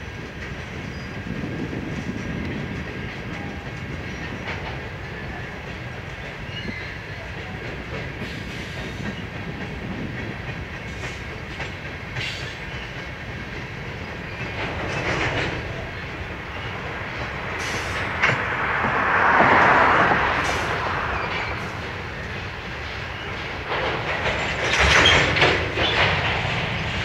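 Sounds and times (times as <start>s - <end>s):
steel wheels rumbling on rail: 0.0s - 27.0s
wheels clacking over rail joints: 0.2s - 27.0s.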